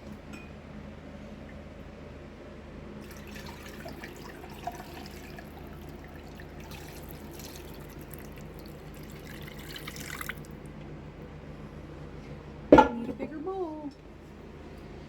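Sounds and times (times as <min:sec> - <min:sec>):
liquid pouring through strainer: 0:03.0 - 0:10.7.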